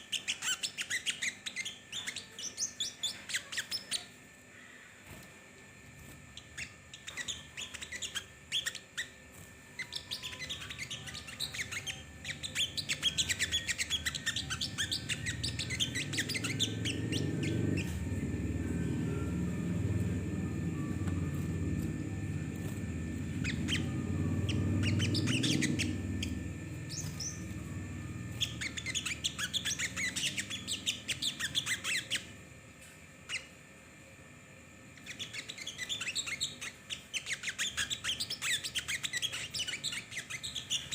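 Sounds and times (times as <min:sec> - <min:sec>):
songbird chirping: 0:06.3 - 0:32.4.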